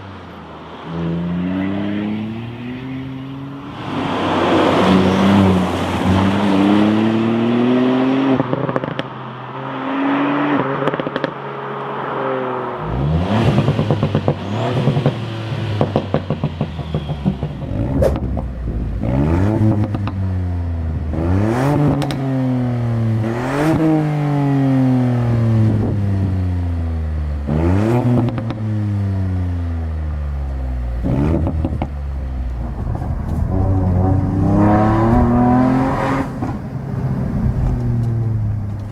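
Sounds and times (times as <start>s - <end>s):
car engine accelerating hard: 0.0s - 38.9s.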